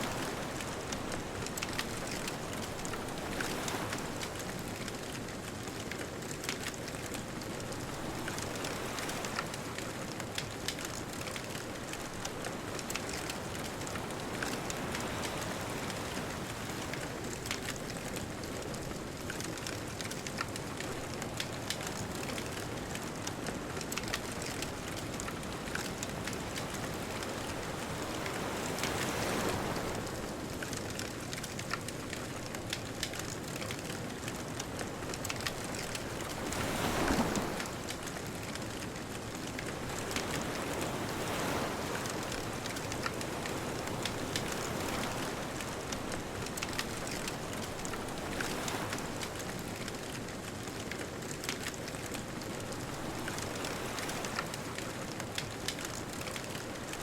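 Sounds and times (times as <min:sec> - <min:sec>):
bonfire crackling: 0:00.0 - 0:57.0
ocean waves washing in: 0:32.3 - 0:57.0.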